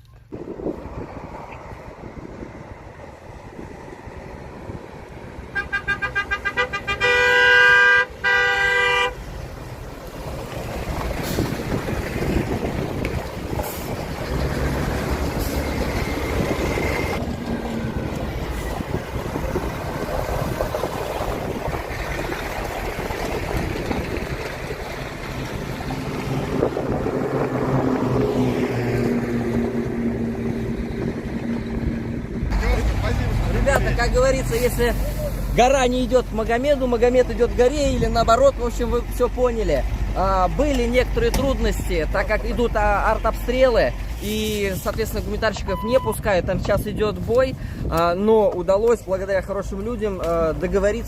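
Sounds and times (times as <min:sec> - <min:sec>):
heavy vehicle engine: 0:00.0 - 0:51.0
road noise: 0:00.0 - 0:51.0
vehicle horn toots and blasts: 0:05.5 - 0:09.2.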